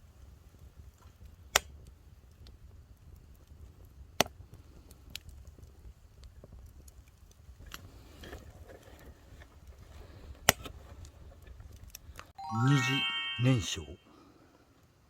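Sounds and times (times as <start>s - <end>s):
wood fire crackling: 0.1s - 12.3s
sharp snapping pops: 1.5s - 1.8s, 4.2s - 4.4s.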